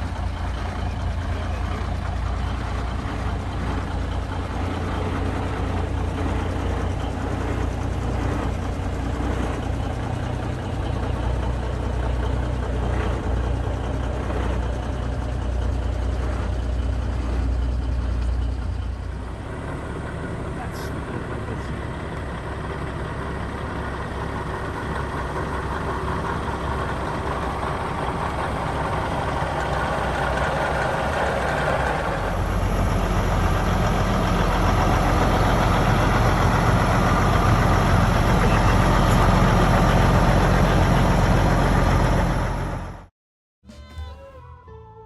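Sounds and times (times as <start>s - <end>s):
diesel truck engine running: 0.0s - 43.1s.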